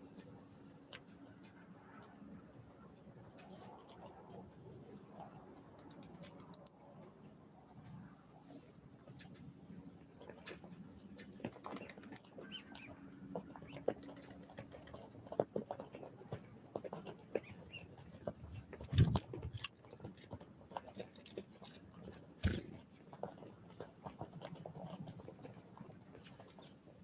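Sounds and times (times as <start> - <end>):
birds pecking and tapping: 5.2 - 6.8, 10.2 - 26.8.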